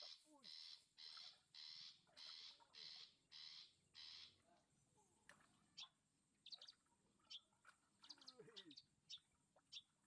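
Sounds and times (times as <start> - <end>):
bird rasping calls: 0.0 - 4.4.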